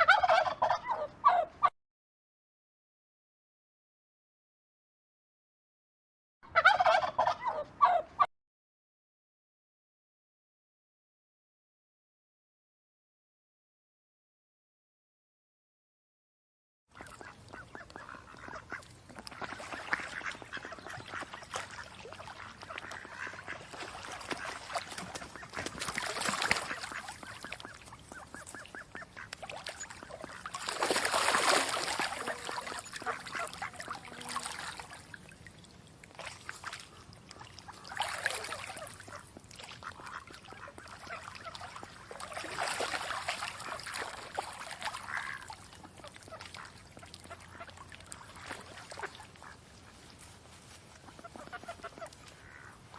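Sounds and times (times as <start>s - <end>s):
waterfowl calling: 0.0s - 1.7s, 6.5s - 8.3s, 16.9s - 50.1s, 50.8s - 52.9s.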